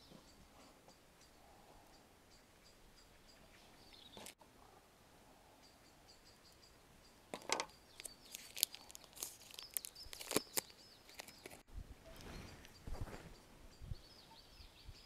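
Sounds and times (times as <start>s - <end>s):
small birds chirping: 0.0s - 15.0s
clicks and clatters of handling: 7.3s - 11.6s.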